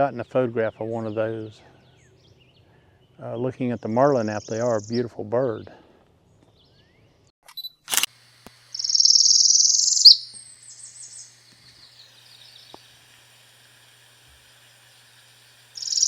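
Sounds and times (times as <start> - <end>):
bird singing buzzy trill: 0.0 - 5.2, 8.7 - 13.0, 14.8 - 16.0
faint high bird chirps: 8.7 - 12.8, 15.8 - 16.0.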